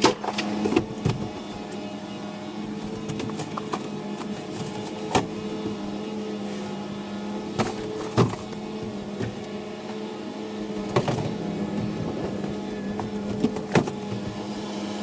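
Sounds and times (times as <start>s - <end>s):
vehicle engine hum: 10.3s - 14.4s.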